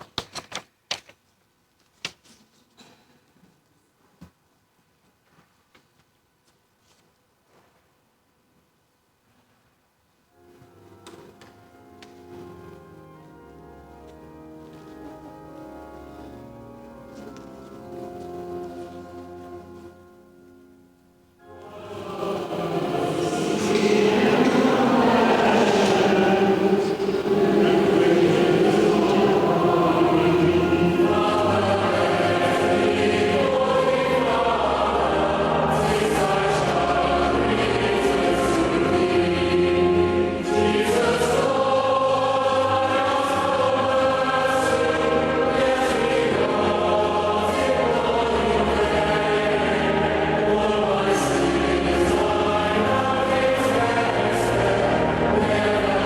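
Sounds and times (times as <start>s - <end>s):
choir singing a hymn: 21.5s - 56.0s
low held notes: 21.5s - 56.0s.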